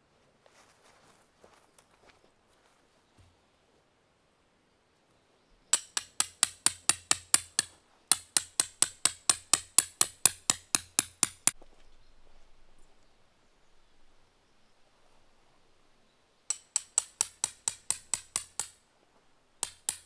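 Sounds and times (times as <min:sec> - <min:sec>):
rapid hammer strikes: 0:05.7 - 0:11.6, 0:16.5 - 0:18.8, 0:19.6 - 0:20.0.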